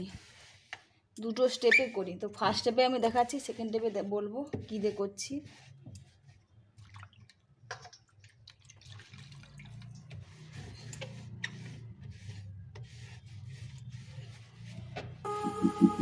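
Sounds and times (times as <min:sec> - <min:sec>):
damp cloth wiping: 0:09.8 - 0:15.0.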